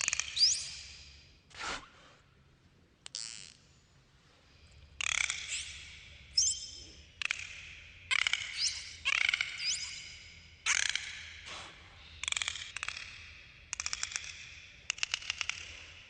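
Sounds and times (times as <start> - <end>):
dolphin buzzy click calls: 3.0 - 3.6, 12.2 - 15.9
dolphin whistles: 8.1 - 10.9.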